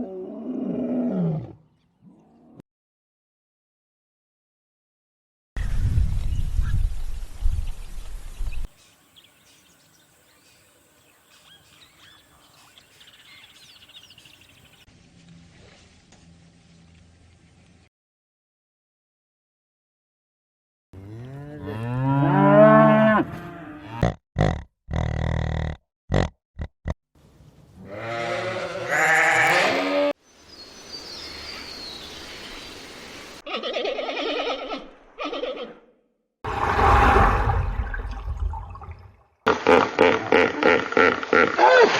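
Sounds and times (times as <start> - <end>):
songbird chirps and trill: 8.4 - 14.9, 30.2 - 33.4.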